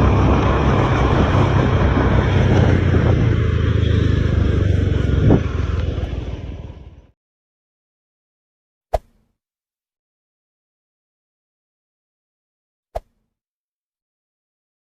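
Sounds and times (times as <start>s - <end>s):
truck engine rumbling: 0.0s - 7.1s
road noise: 0.0s - 7.2s.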